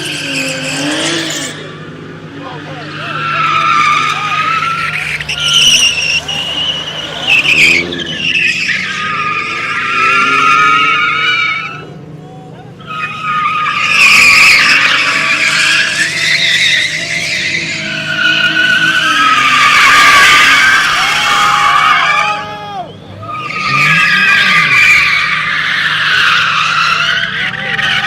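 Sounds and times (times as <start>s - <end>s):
car engine revving: 0.0s - 28.0s
car tyres screeching: 0.0s - 28.0s.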